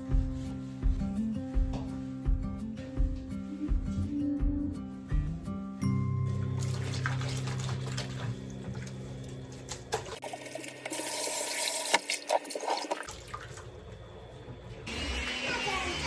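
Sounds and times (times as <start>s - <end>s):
water running: 5.8s - 16.0s
water dripping: 6.2s - 13.7s.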